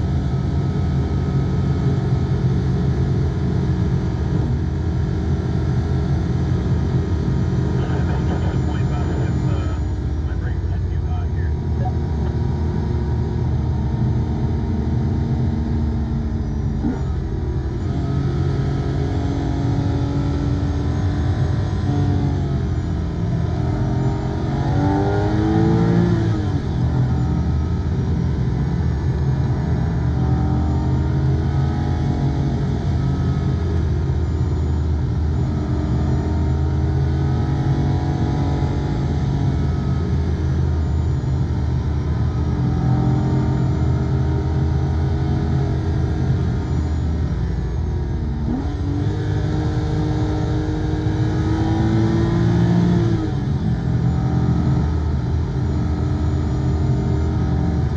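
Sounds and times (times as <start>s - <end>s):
car engine revving: 0.0s - 57.9s.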